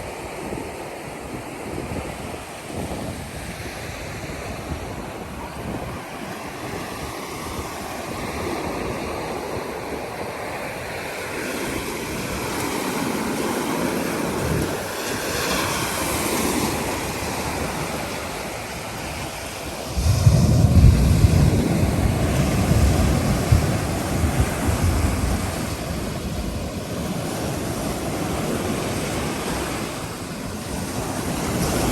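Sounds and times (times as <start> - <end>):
surf breaking on beach: 0.0 - 31.9
wind buffeting microphone: 0.0 - 31.9.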